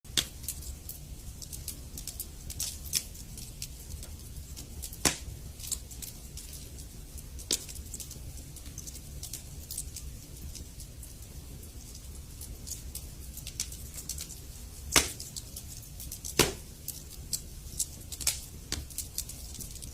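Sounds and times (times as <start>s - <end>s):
low rumble of flames: 0.1s - 19.9s
wood fire snaps and pops: 0.1s - 19.9s.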